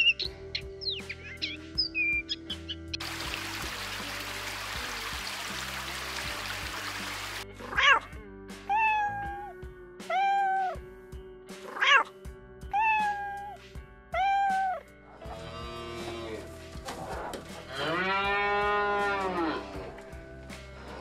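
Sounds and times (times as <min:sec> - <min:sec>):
background music: 0:00.0 - 0:21.0
kitten meowing: 0:08.7 - 0:09.5, 0:10.1 - 0:10.8, 0:11.7 - 0:12.1, 0:12.7 - 0:13.6, 0:14.2 - 0:14.8.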